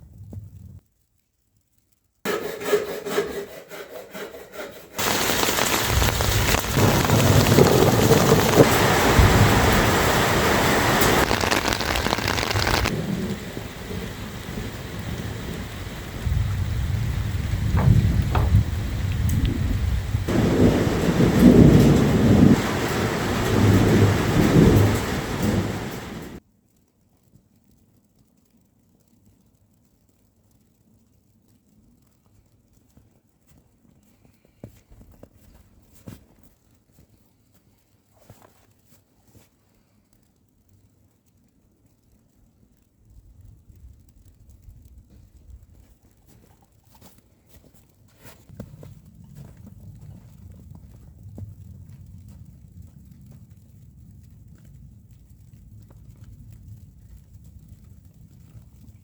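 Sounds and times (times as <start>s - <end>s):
heavy rain pouring: 5.0s - 26.4s
sharp thunder cracks: 5.0s - 26.4s
thunder rumbling: 5.0s - 26.4s.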